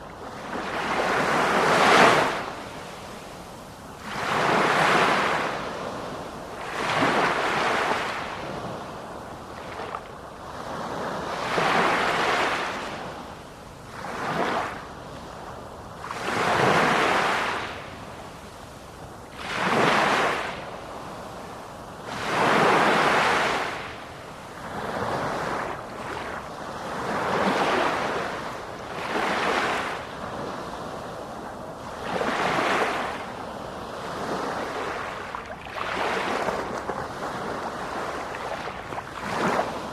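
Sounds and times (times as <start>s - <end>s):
sea waves breaking: 22.1s - 39.9s.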